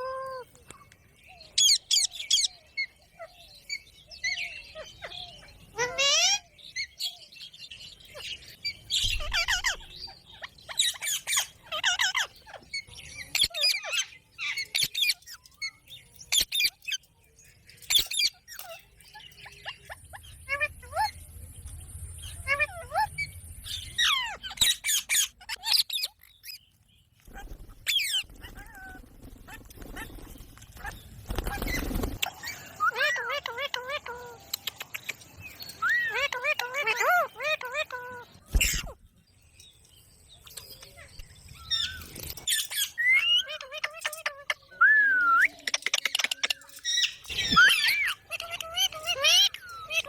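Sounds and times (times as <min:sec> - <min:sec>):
parrot squawking and chirping: 0:01.6 - 0:07.0, 0:08.0 - 0:17.1, 0:17.8 - 0:21.3, 0:22.2 - 0:39.0, 0:40.4 - 0:44.9, 0:45.5 - 0:50.0
parrot squawking: 0:32.6 - 0:34.8, 0:35.8 - 0:39.0, 0:42.6 - 0:44.8, 0:46.9 - 0:50.0.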